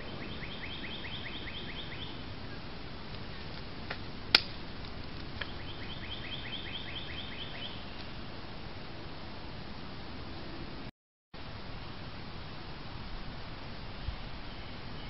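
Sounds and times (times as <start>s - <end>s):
steady hiss: 7.7s - 15.0s.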